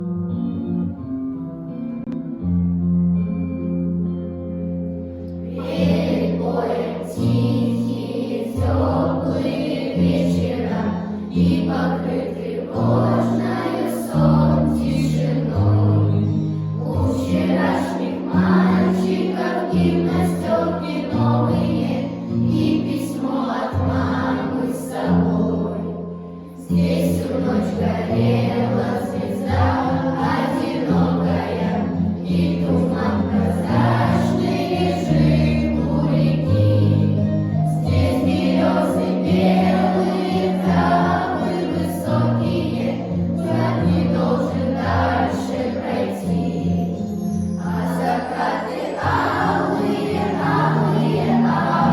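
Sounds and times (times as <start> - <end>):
instrumental backing track: 0.0 - 6.7, 29.6 - 42.2
choir singing: 5.4 - 51.9.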